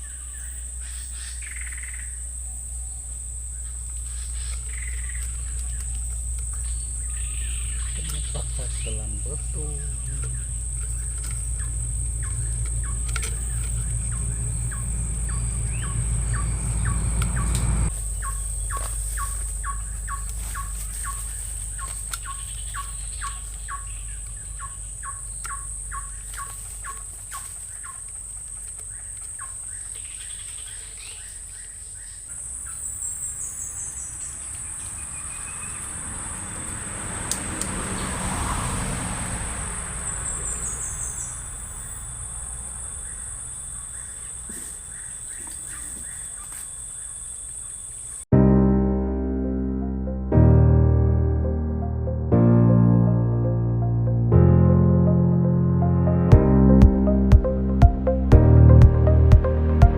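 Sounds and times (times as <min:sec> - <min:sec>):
bird chirping: 0:00.0 - 0:36.7, 0:40.0 - 0:48.2
high insect drone: 0:00.0 - 0:48.3.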